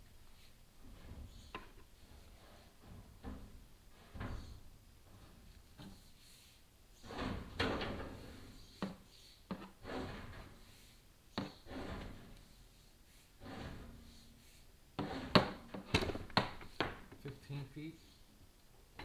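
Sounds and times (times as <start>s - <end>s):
camera scraping inside flue: 9.7s - 16.8s
camera knocking inside chimney flue: 15.0s - 17.4s.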